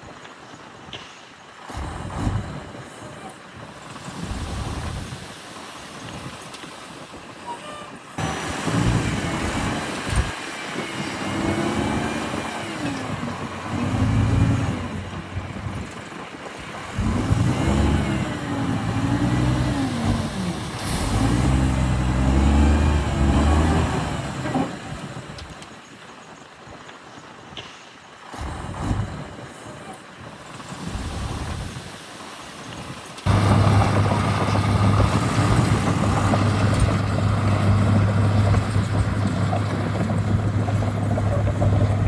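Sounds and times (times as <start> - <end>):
heavy diesel engine revving: 1.7 - 3.3, 4.0 - 5.2, 8.2 - 25.5, 28.3 - 30.0, 30.8 - 31.8, 33.2 - 42.0.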